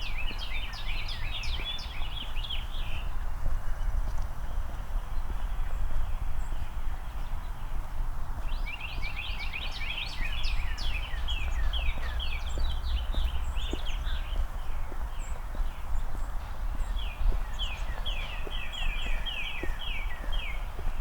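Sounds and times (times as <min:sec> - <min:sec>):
songbirds twittering: 0:00.0 - 0:21.0
low outdoor rumble: 0:10.6 - 0:17.1
soft footsteps: 0:11.2 - 0:21.0.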